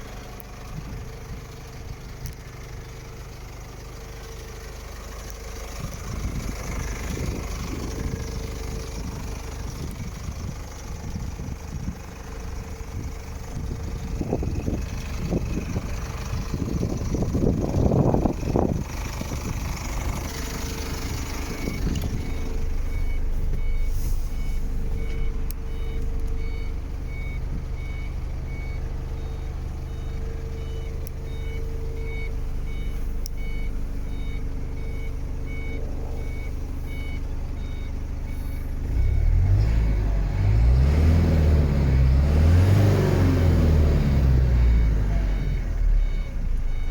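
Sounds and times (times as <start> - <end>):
diesel engine idling and revving: 0.0 - 46.9
electronic warning beep: 14.2 - 41.8, 42.4 - 46.9.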